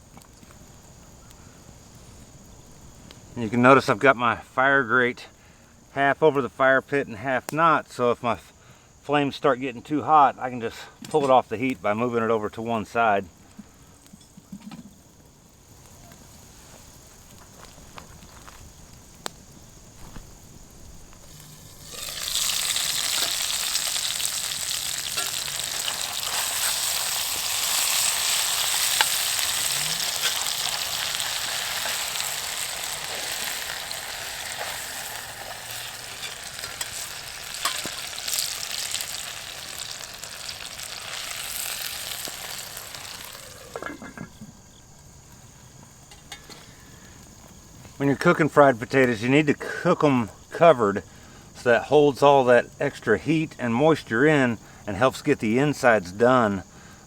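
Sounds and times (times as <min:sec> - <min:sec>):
potatoes sizzling in oil: 0:12.6 - 0:48.0.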